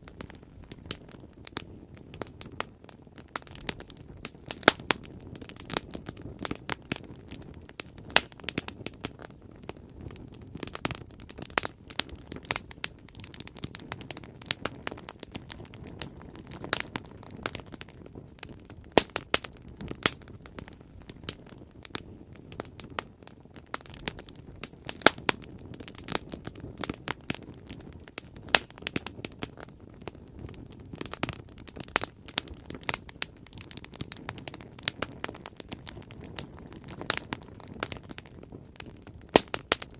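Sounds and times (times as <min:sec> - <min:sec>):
rush of flames: 0:00.0 - 0:39.9
wood crackling and popping: 0:00.0 - 0:39.9.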